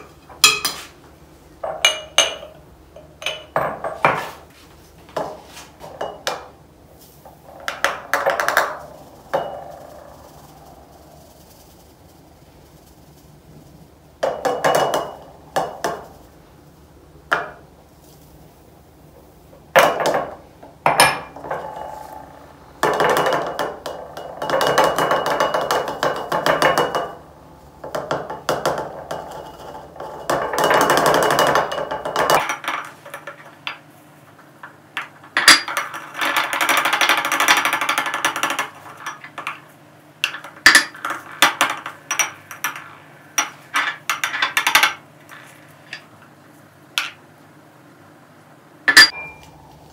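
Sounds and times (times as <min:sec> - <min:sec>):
jars knocking and clinking: 0:01.6 - 0:04.3, 0:05.2 - 0:06.5, 0:35.0 - 0:45.0.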